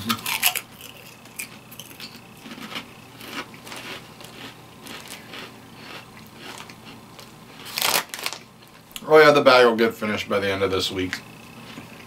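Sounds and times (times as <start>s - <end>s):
potato chips crunching: 0.0s - 8.8s.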